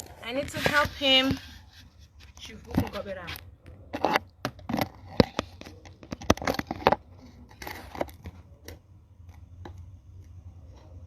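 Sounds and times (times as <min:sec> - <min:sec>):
phone handling knocks and scrapes: 0:00.0 - 0:08.5.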